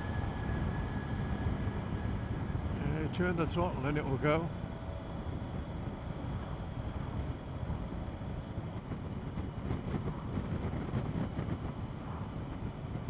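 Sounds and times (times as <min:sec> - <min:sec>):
wind noise: 0:04.6 - 0:13.0.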